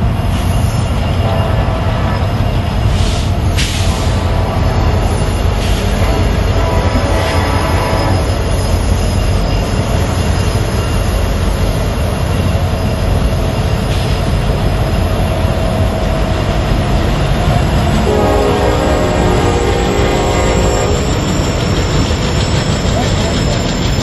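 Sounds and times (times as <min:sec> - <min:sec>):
train rumbling on rails: 0:00.0 - 0:24.0
train horn: 0:01.2 - 0:08.6, 0:17.6 - 0:21.5.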